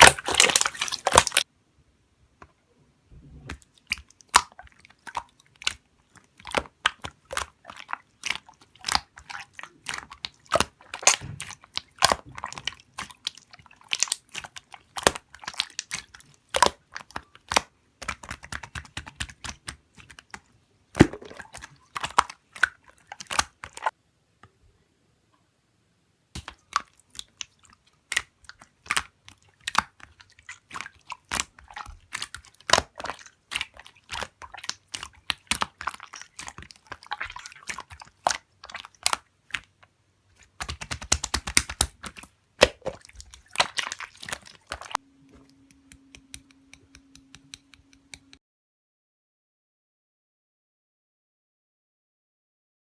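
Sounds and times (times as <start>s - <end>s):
faint steady hum: 45.0s - 48.3s.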